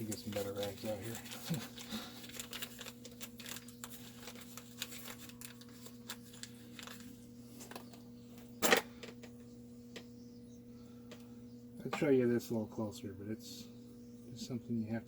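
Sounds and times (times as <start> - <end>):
small clicks and rustling: 0.0 - 8.0
steady electrical hum: 0.0 - 15.0.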